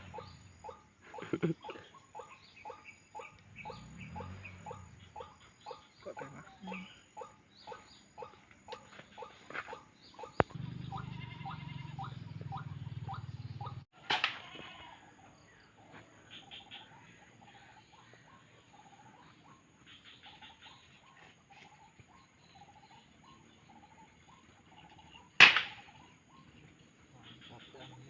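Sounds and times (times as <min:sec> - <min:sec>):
bird chirping: 0:00.0 - 0:13.9, 0:15.2 - 0:28.0
gunshots: 0:25.4 - 0:25.9.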